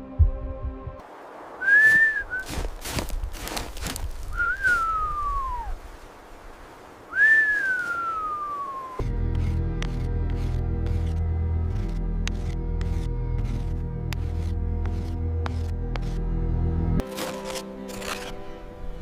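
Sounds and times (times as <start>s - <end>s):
rushing hiss with crackles: 1.0s - 9.0s
high whistling tones sliding down: 7.1s - 9.0s.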